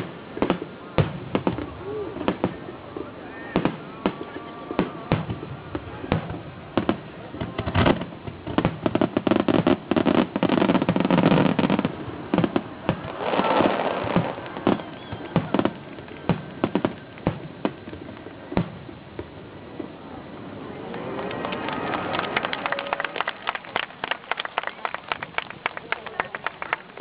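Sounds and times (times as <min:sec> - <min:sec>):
fireworks hissing: 0:00.0 - 0:20.5
fireworks bangs and crackles: 0:00.0 - 0:23.0.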